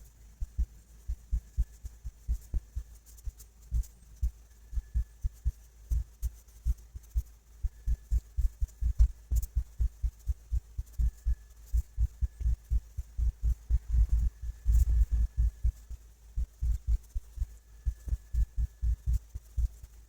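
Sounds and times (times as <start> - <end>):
dull low thumps: 7.7 - 19.8.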